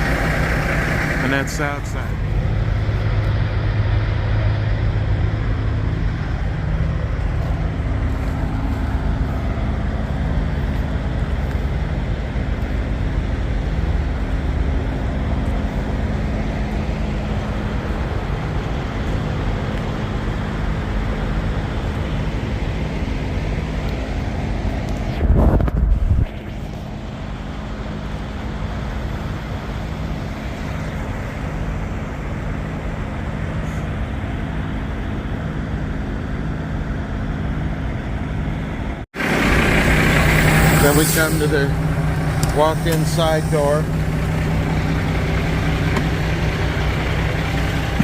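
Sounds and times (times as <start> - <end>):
large diesel engine idling: 0.0 - 48.0
wind buffeting microphone: 24.6 - 26.7.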